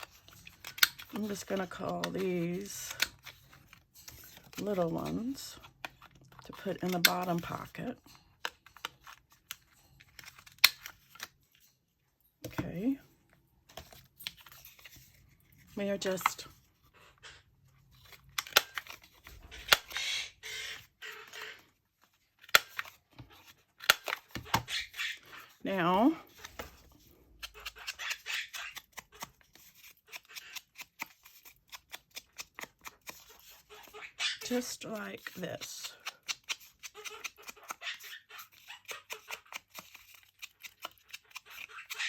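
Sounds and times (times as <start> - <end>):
paper rustling: 13.7 - 16.6.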